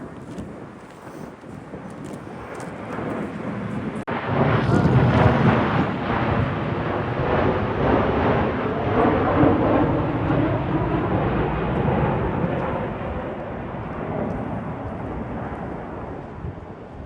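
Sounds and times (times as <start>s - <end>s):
wind blowing on microphone: 0.0s - 17.0s.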